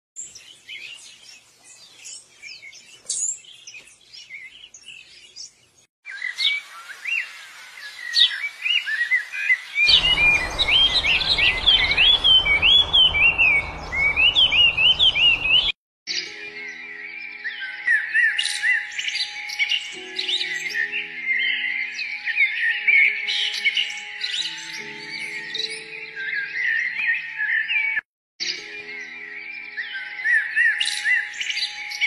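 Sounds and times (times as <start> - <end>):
small birds chirping: 0.2 - 15.8
low steady hum: 9.9 - 15.7.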